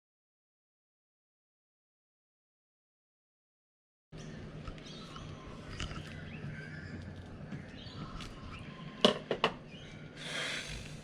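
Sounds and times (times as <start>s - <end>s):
birds chirping faintly: 4.1s - 11.0s.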